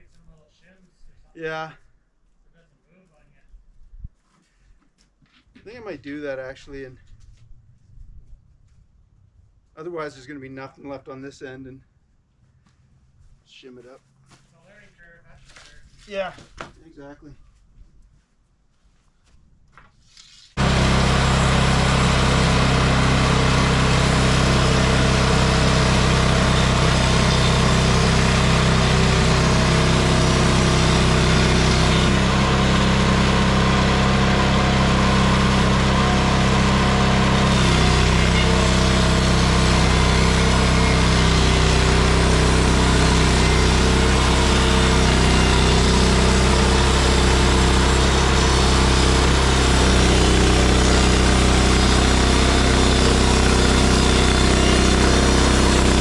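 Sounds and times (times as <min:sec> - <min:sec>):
small gas engine running: 0:20.6 - 0:56.0.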